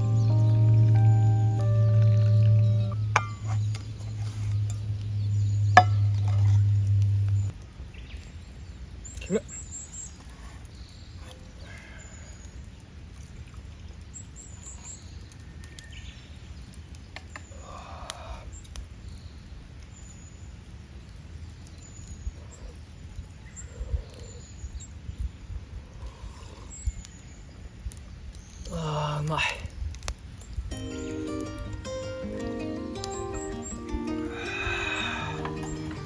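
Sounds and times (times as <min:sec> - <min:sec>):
low outdoor rumble: 0:00.0 - 0:10.0
small birds chirping: 0:00.0 - 0:36.0.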